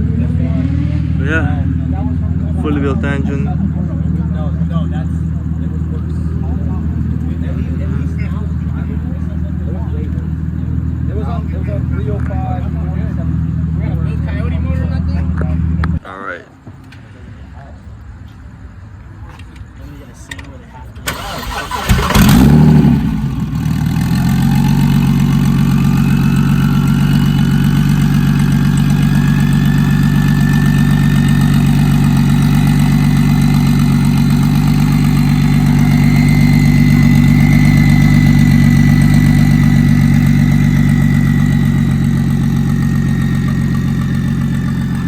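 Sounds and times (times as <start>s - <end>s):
car engine starting and idling: 0.0s - 16.0s, 20.2s - 45.0s.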